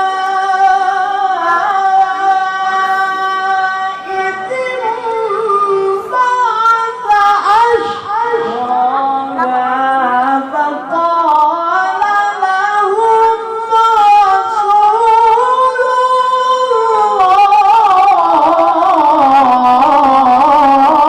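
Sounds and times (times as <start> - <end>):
man reciting in melodic voice: 0.0 - 21.0.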